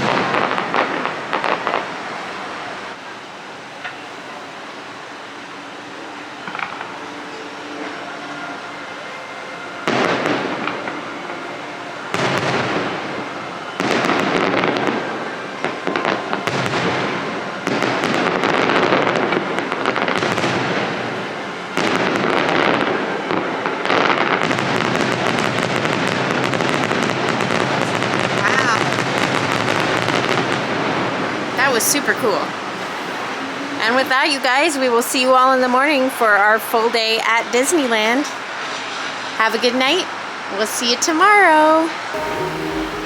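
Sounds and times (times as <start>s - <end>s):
fireworks crackling: 0.0s - 2.7s, 12.1s - 33.2s
fireworks bursting: 42.1s - 43.0s.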